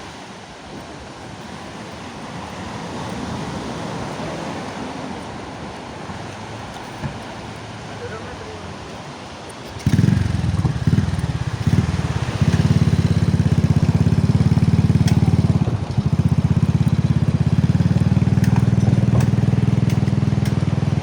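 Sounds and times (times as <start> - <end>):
small engine running: 9.7 - 21.0.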